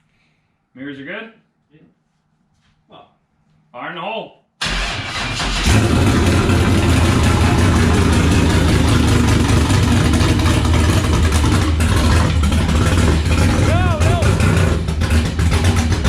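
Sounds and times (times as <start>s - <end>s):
car engine idling loud: 5.1s - 16.0s.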